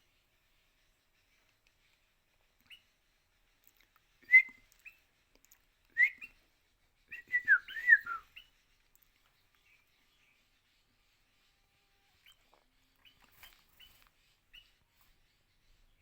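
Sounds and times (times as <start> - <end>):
bulbul whistled calls: 4.1 - 5.2, 5.9 - 6.4, 7.0 - 8.8.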